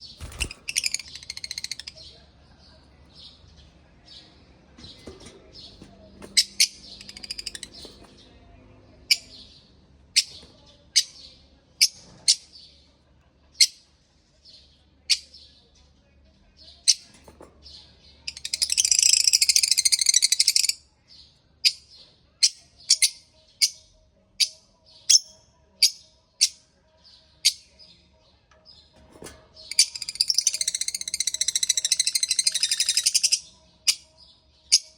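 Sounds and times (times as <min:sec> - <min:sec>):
parrot chirping and chattering: 0:00.0 - 0:08.2, 0:18.3 - 0:20.8, 0:29.2 - 0:34.0.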